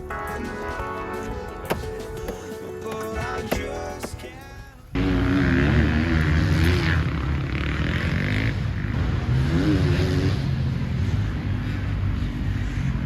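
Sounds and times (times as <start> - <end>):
motocross bike engine revving: 5.0 - 13.0.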